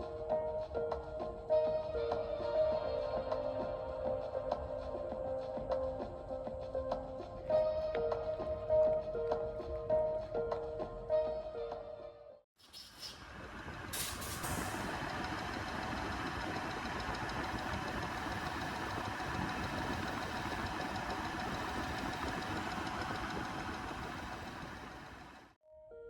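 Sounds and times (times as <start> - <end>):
metalworking machine running: 13.2 - 25.6.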